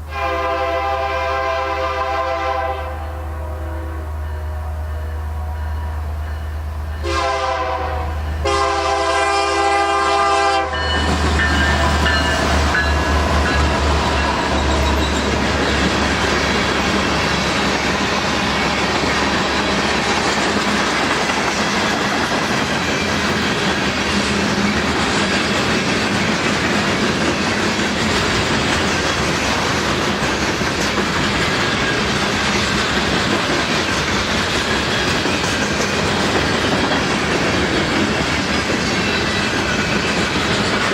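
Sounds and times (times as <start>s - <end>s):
locomotive air horn blasts: 0.0s - 5.9s, 7.0s - 12.2s
train rolling past: 0.0s - 40.9s
wheels clacking over rail joints: 10.8s - 40.9s.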